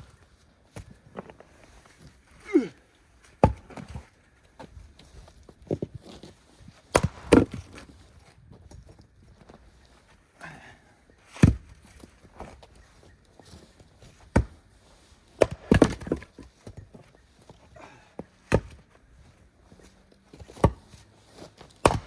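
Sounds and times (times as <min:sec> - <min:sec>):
axe chopping firewood: 0:03.3 - 0:04.0, 0:06.9 - 0:07.9, 0:11.3 - 0:12.5, 0:14.2 - 0:14.6, 0:15.3 - 0:16.9, 0:18.4 - 0:18.8, 0:20.4 - 0:21.0, 0:21.6 - 0:22.0.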